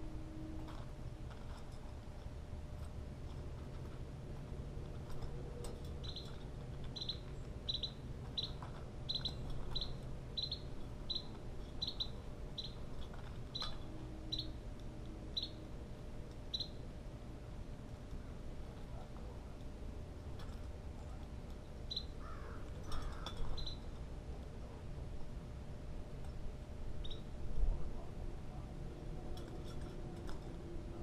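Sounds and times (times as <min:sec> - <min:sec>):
low background rumble: 0:00.0 - 0:31.0
bird chip calls: 0:06.0 - 0:12.8, 0:13.5 - 0:14.6, 0:15.3 - 0:15.6, 0:16.5 - 0:16.8, 0:21.9 - 0:23.9, 0:27.0 - 0:27.3.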